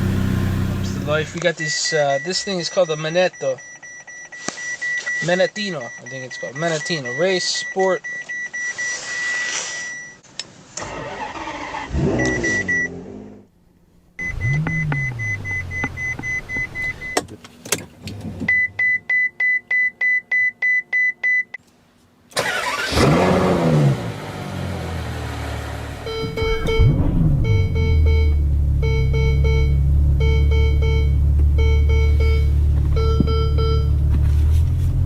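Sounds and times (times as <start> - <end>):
regular beeps: 1.2 - 10.2, 12.2 - 13.0, 14.2 - 17.2, 26.0 - 34.0
engine starting and revving: 10.8 - 13.5, 22.4 - 31.0
dashboard chime tone: 26.1 - 34.0.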